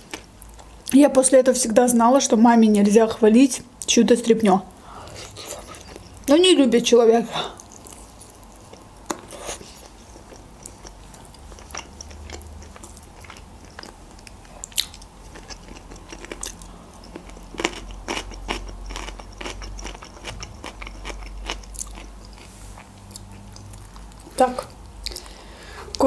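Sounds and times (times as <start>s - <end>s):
chewing mouth sounds: 4.7s - 6.3s, 7.5s - 26.0s.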